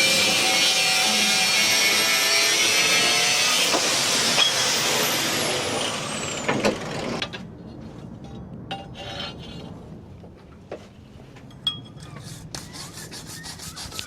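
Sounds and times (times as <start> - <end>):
power tool grinding metal: 0.0 - 7.2.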